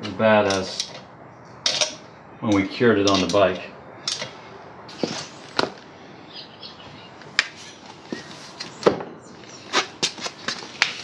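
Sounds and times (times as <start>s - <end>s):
metal tools clinking and knocking: 1.6s - 2.0s.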